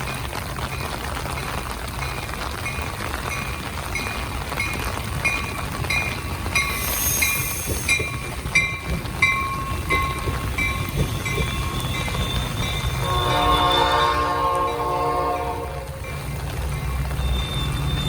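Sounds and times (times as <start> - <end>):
railroad crossing bell ringing: 0.0 - 18.0
train rumbling past: 0.0 - 18.0
locomotive air horn chord: 13.0 - 16.0.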